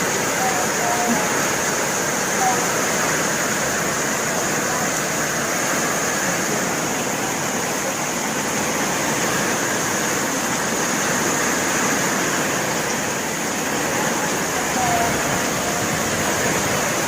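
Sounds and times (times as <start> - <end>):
heavy rain downpour: 0.0 - 17.0.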